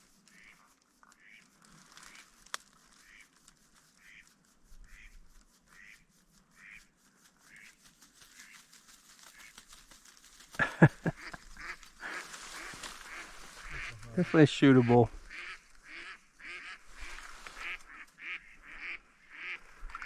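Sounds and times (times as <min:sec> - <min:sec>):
duck quacking: 0:05.8 - 0:06.0, 0:11.0 - 0:19.6.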